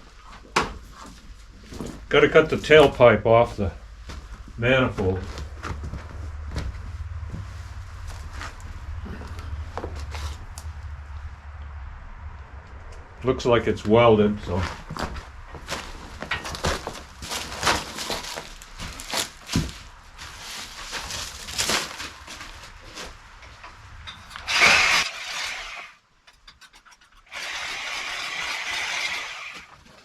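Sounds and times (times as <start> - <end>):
metal clanking and scraping: 15.2 - 18.4, 23.3 - 27.3
power cutting tool cutting metal: 24.4 - 26.0, 27.3 - 29.7.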